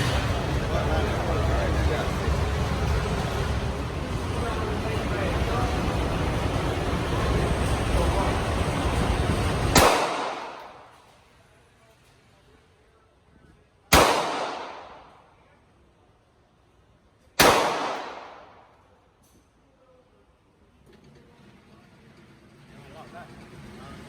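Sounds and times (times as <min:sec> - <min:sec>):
steady rushing noise: 0:00.0 - 0:10.6
pistol shots echoing: 0:09.7 - 0:11.0, 0:13.9 - 0:15.2, 0:17.4 - 0:18.7.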